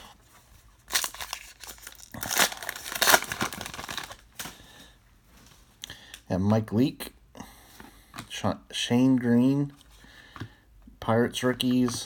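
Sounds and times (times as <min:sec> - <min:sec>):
wrapper tearing and crinkling: 0:00.8 - 0:04.6.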